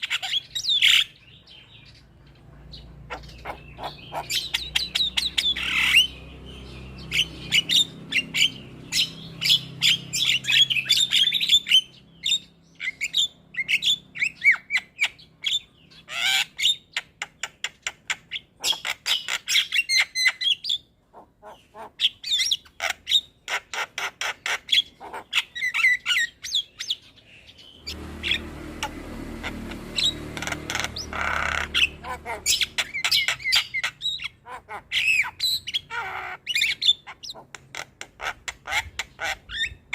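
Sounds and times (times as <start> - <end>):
mynas chattering and calling: 2.7 - 12.0, 21.1 - 26.4, 27.8 - 39.9.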